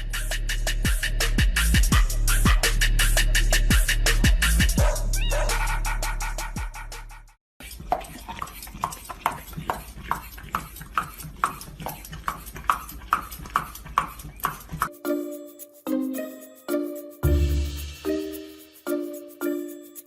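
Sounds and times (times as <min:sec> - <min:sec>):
background music: 0:14.9 - 0:20.0.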